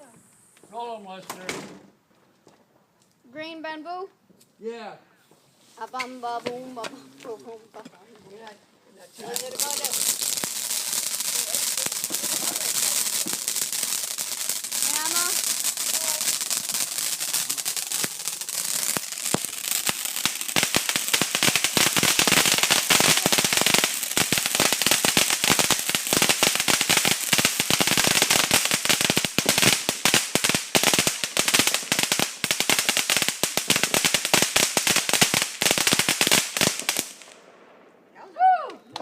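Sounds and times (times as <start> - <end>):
rapid firecracker bangs and crackling: 9.2 - 37.7.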